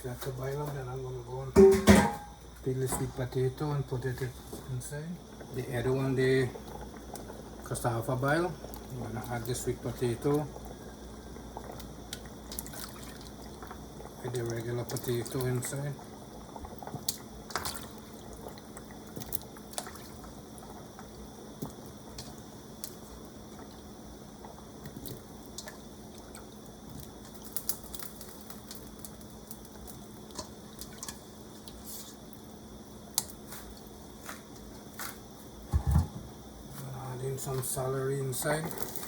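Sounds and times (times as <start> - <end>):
kitchen clicks and taps: 1.6 - 2.3
soup bubbling in a pot: 1.6 - 39.0.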